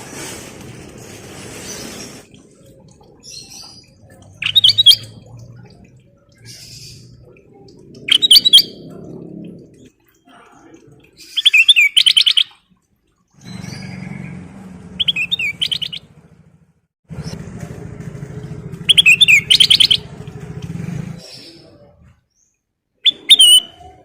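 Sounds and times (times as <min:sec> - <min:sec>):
bulbul singing rippling whistles: 0:02.0 - 0:09.0, 0:11.2 - 0:12.6, 0:15.0 - 0:16.1, 0:18.8 - 0:20.1, 0:23.0 - 0:24.0
low droning motor hum: 0:13.4 - 0:15.3, 0:16.0 - 0:19.2.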